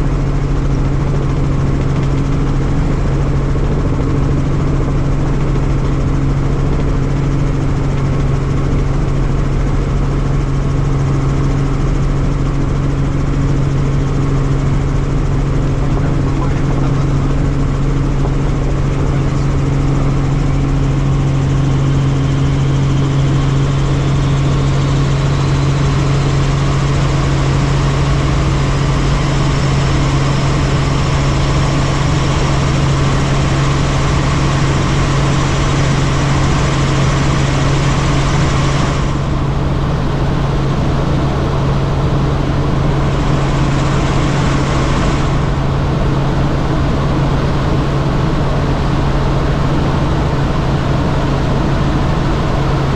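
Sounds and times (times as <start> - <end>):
constant low hum: 0.0 - 52.9
helicopter engine and rotor drone: 0.0 - 52.9.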